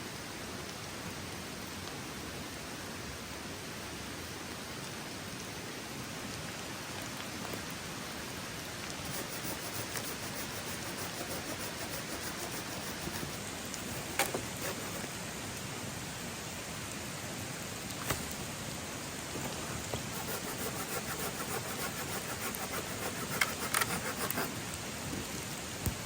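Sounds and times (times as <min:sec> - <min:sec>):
rain falling on forest: 0:00.0 - 0:09.1, 0:13.4 - 0:20.2, 0:24.5 - 0:26.0.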